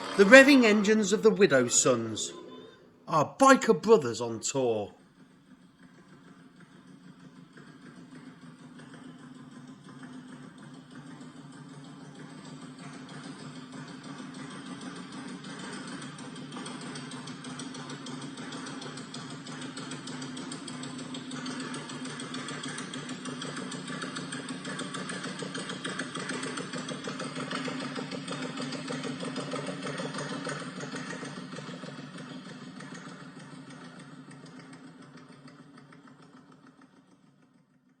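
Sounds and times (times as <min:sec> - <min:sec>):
motorcycle engine running: 0:00.0 - 0:00.2, 0:18.1 - 0:37.5.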